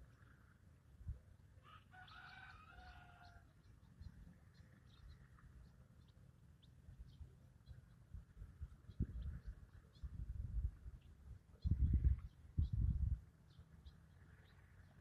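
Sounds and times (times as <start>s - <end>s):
drawn-out bird call: 1.6s - 8.1s
bird chirps: 1.9s - 10.2s, 10.9s - 15.0s.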